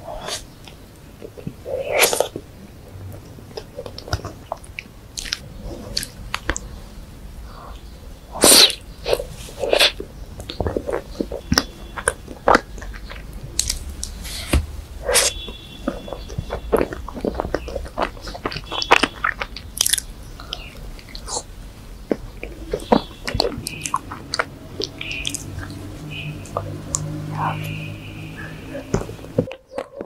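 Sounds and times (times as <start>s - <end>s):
wet chewing and mouth smacks: 3.5s - 6.8s, 7.7s - 30.0s.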